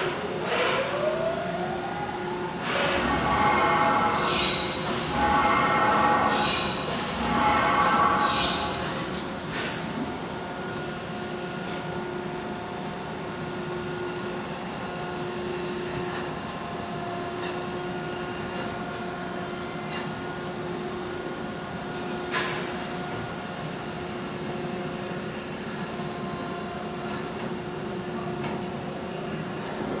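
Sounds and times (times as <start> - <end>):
machinery hum: 0.0 - 30.0.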